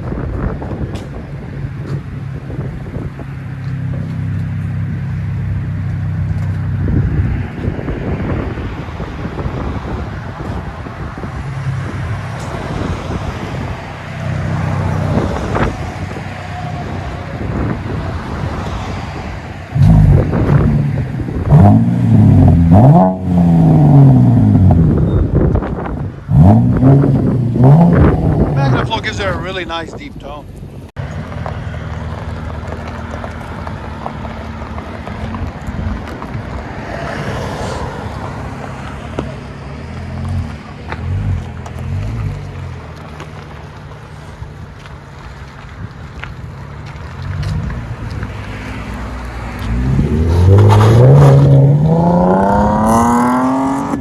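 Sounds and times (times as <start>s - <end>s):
car engine revving: 11.3s - 25.0s, 26.2s - 29.2s, 46.9s - 54.0s.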